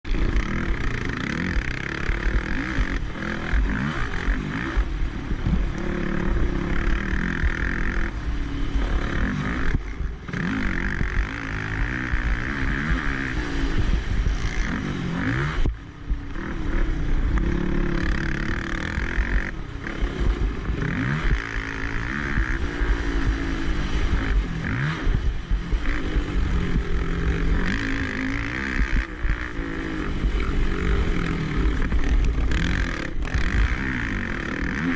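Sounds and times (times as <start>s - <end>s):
quad engine revving: 0.1s - 34.9s.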